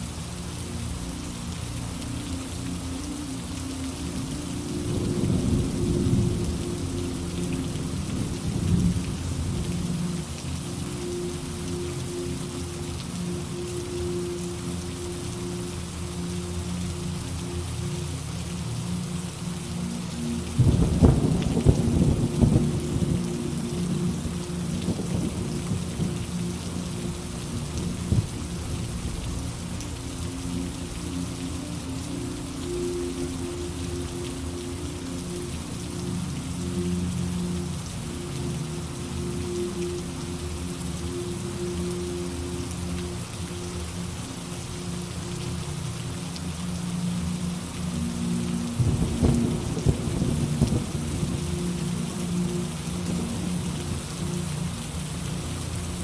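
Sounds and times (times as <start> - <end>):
steady rain: 0.0 - 56.0
thunder crackling and rumbling: 4.9 - 9.9, 20.6 - 26.3, 48.8 - 51.8.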